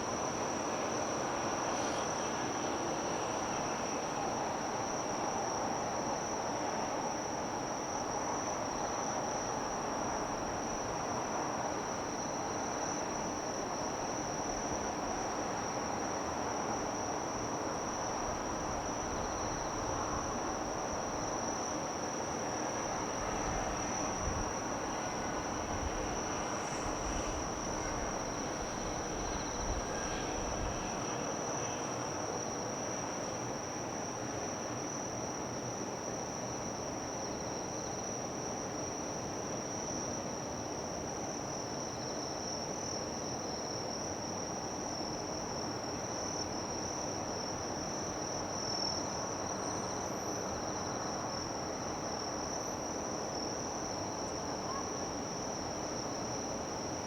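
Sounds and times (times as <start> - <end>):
insects trilling: 0.1 - 6.9, 11.9 - 35.4
harbour background noise: 16.8 - 36.0.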